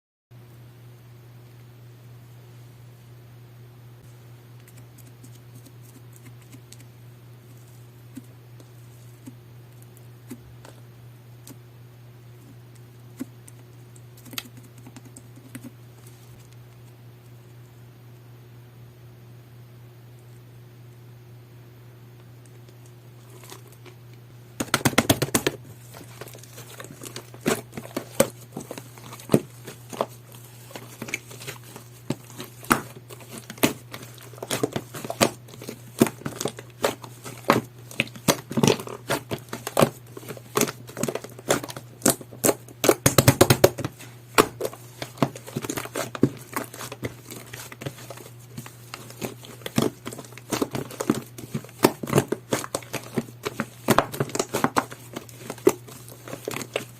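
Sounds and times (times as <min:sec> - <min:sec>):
steady low hum: 0:00.4 - 0:56.9
slime crackling: 0:25.3 - 0:56.9.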